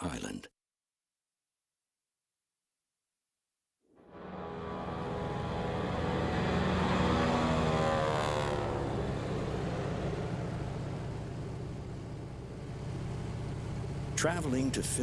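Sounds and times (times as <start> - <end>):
engine humming passing by: 4.1 - 15.0.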